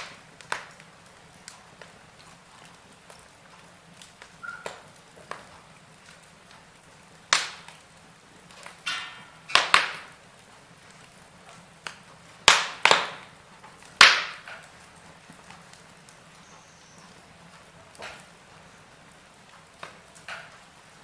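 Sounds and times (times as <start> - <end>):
faint steady hiss: 0.0 - 21.0
wood fire crackling and popping: 0.0 - 21.0.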